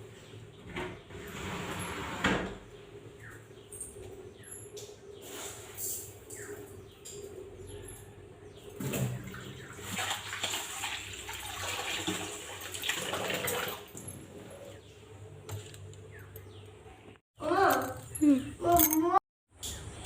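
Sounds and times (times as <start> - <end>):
water running and splashing: 9.7 - 14.0.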